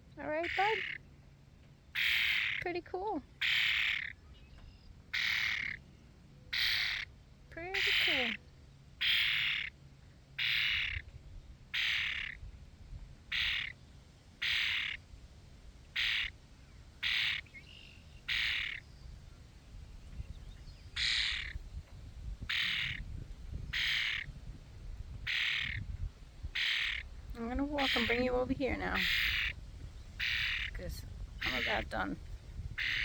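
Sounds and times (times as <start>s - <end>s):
bird squawking harshly: 0.4s - 1.0s, 2.0s - 2.6s, 3.4s - 4.2s, 5.1s - 5.8s, 6.5s - 7.1s, 7.7s - 8.4s, 9.0s - 9.7s, 10.4s - 11.0s, 11.7s - 12.4s, 13.3s - 13.7s, 14.4s - 15.0s, 16.0s - 16.3s, 17.0s - 17.4s, 18.3s - 18.8s, 21.0s - 21.6s, 22.5s - 23.0s, 23.7s - 24.3s, 25.3s - 25.8s, 26.6s - 27.1s, 27.8s - 29.6s, 30.2s - 30.8s, 31.4s - 32.0s, 32.8s - 33.0s.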